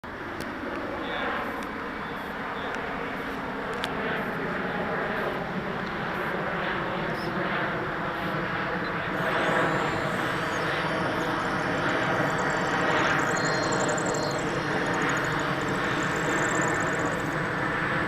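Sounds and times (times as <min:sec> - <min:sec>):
high whine: 0:08.8 - 0:18.0
electric ducted fans rushing hiss: 0:09.0 - 0:18.0.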